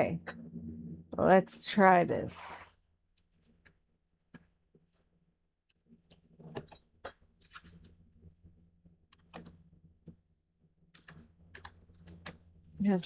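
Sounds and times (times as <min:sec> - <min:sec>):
low steady hum: 0:00.0 - 0:02.7.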